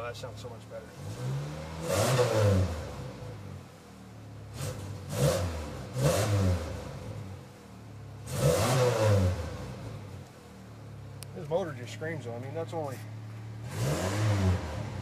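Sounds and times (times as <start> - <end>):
truck engine revving: 0.8 - 3.6, 4.5 - 7.4, 8.2 - 10.2, 12.9 - 15.0.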